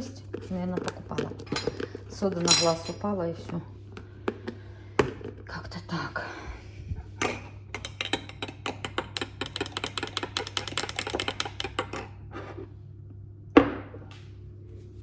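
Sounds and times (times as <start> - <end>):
spoon stirring batter: 0.0 - 3.2, 7.3 - 12.7.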